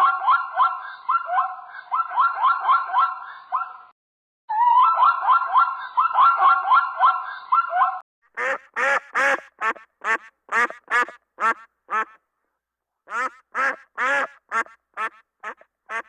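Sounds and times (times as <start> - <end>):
duck quacking: 8.4 - 12.2, 13.1 - 16.0
fast warbling call: 8.4 - 12.2.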